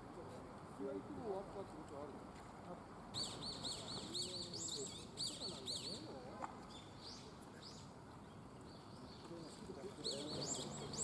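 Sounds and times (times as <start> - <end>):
small bird chirping: 3.2 - 11.0.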